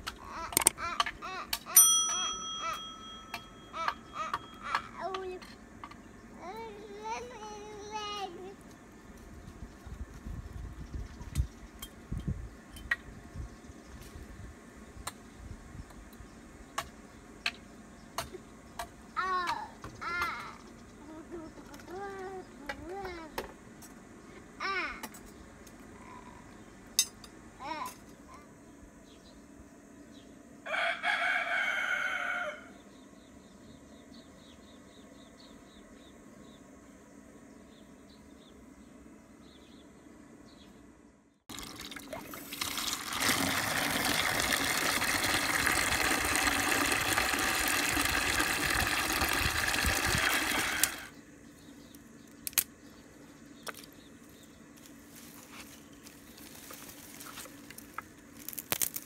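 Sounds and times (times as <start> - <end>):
rooster crowing: 30.6 - 32.8
water gushing into plastic bucket: 41.5 - 51.1.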